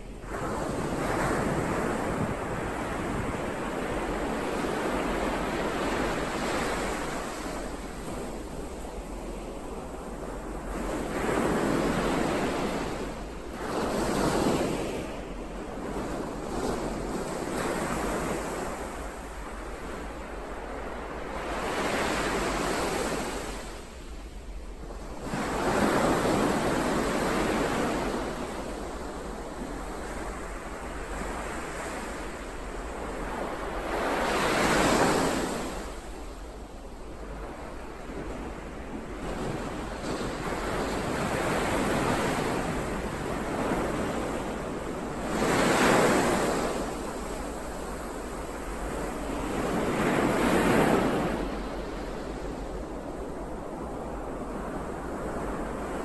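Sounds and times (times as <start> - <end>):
ocean waves breaking: 37.2 - 56.0.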